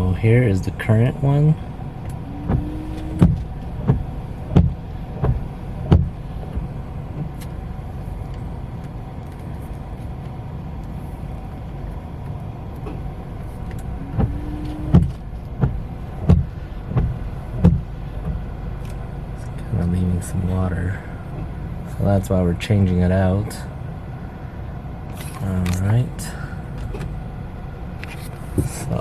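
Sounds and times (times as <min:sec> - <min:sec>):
car engine idling: 0:00.0 - 0:29.0
wiper motor whine: 0:00.0 - 0:29.0
windshield wipers sweeping glass: 0:00.8 - 0:20.4, 0:27.9 - 0:29.0
wiper thumps: 0:02.2 - 0:07.4, 0:12.8 - 0:18.6, 0:28.5 - 0:28.9.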